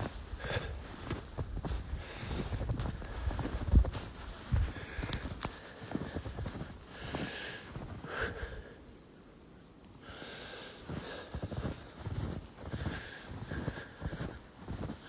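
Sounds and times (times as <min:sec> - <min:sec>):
footsteps crunching through snow: 0:00.0 - 0:08.1, 0:10.7 - 0:15.0
heavy breathing: 0:00.2 - 0:03.4.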